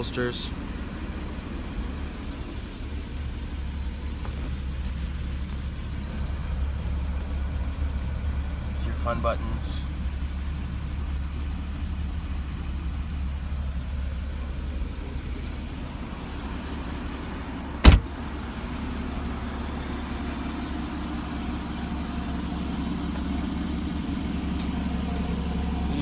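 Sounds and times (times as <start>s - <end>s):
steady low rumble: 9.8s - 26.0s.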